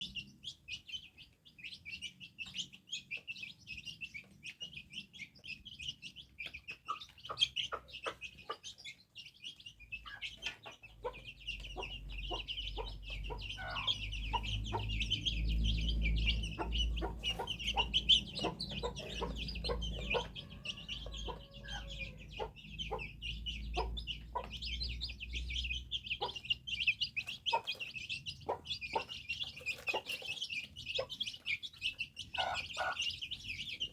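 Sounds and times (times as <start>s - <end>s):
bird chirping rapidly: 0.0s - 33.9s.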